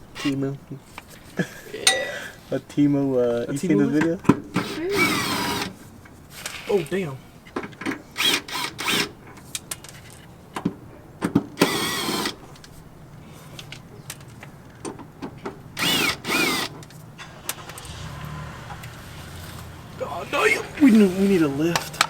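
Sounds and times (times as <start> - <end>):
short squeaking bursts: 4.6 - 7.4.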